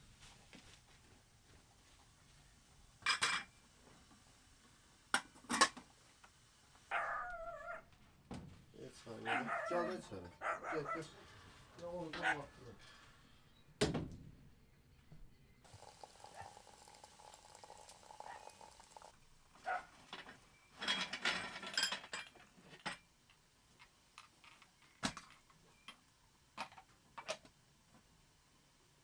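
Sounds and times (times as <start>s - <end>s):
dishes and utensils clattering: 3.0s - 3.6s, 5.2s - 5.8s, 20.0s - 23.1s
steady hiss: 15.7s - 19.5s.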